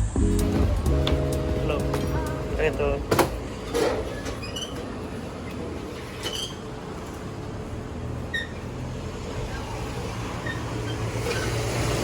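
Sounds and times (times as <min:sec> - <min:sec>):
train rumbling: 0:00.0 - 0:12.0
train wheel squeaks: 0:03.7 - 0:07.2, 0:08.3 - 0:08.7, 0:10.4 - 0:11.8.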